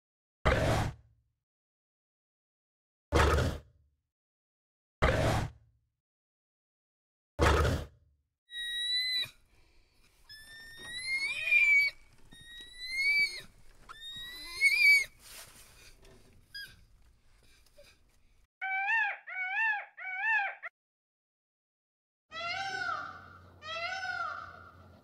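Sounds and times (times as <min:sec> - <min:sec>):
rising whistle-like animal cries: 0:08.5 - 0:09.4, 0:10.3 - 0:15.1.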